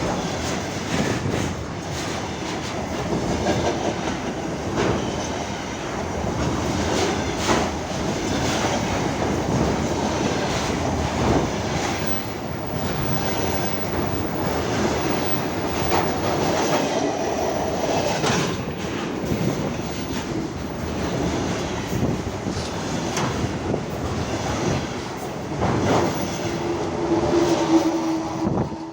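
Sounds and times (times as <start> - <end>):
freight train rumbling: 0.0 - 28.9
wheels clattering over rail joints: 6.0 - 26.6.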